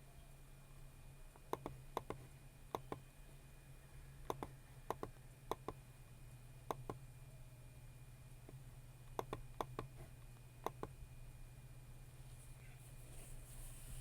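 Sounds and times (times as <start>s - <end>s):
low steady hum: 0.0s - 14.0s
computer mouse clicking: 1.5s - 3.0s, 4.3s - 5.8s, 9.1s - 10.0s, 10.6s - 11.0s.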